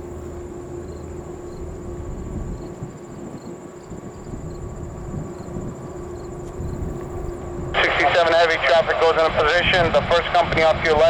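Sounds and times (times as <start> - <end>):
distant jet engines rumbling: 0.0 - 11.0
insect chirring: 0.2 - 7.7.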